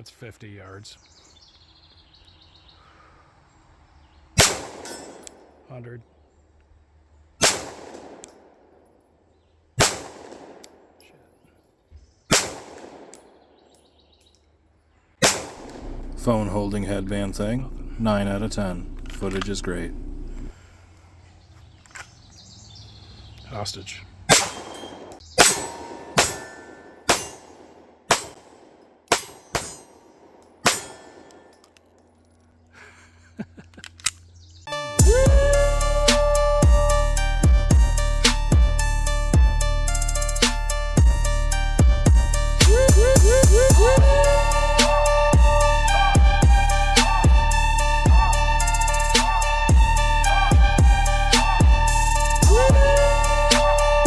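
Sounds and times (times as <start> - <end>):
pistol shots echoing: 4.4 - 5.6, 7.4 - 8.7, 9.8 - 11.0, 12.3 - 13.7, 15.2 - 16.1, 24.3 - 31.6
steel target clanging: 24.3 - 28.4, 29.1 - 30.0, 30.6 - 31.6.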